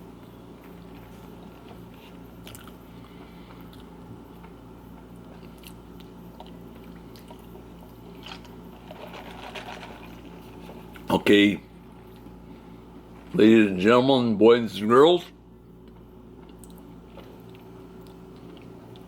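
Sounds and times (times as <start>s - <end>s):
person chewing: 0.6s - 11.1s, 15.8s - 19.0s.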